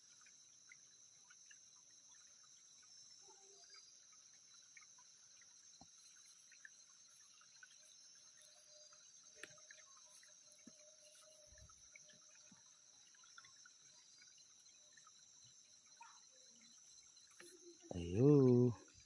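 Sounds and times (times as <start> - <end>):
high insect drone: 0.0 - 19.0
small water sounds: 0.0 - 19.0.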